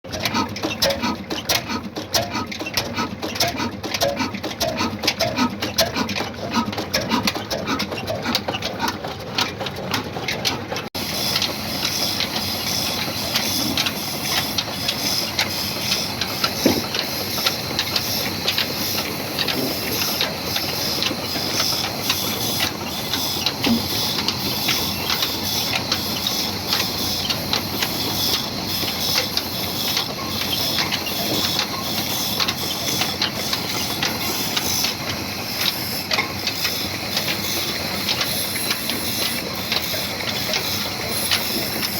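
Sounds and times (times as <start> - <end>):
diesel engine knocking: 0.1 - 41.9
machine clicks: 0.1 - 41.9
hissing machine noise: 11.0 - 41.9.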